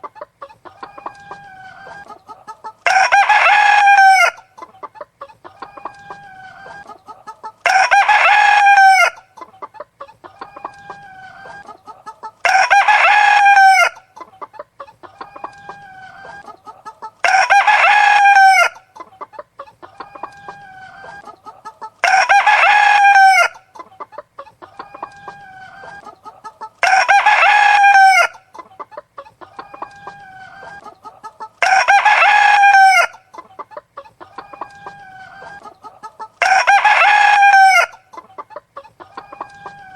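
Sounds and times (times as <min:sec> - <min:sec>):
hens clucking quietly: 0:00.0 - 0:39.9
rooster crowing: 0:02.8 - 0:04.4, 0:07.6 - 0:09.2, 0:12.4 - 0:14.0, 0:17.2 - 0:18.8, 0:22.0 - 0:23.6, 0:26.8 - 0:28.4, 0:31.6 - 0:33.2, 0:34.3 - 0:38.0.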